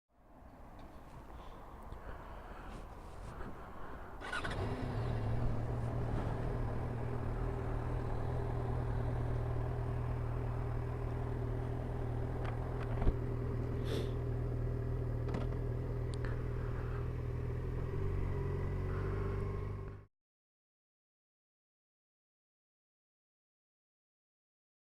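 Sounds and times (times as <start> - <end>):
motorcycle engine running: 4.2 - 20.1.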